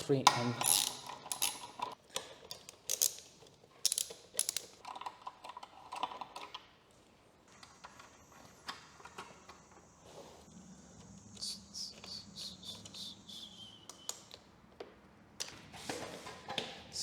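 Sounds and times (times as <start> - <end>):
hex key clicking on bolts: 0.2 - 5.6.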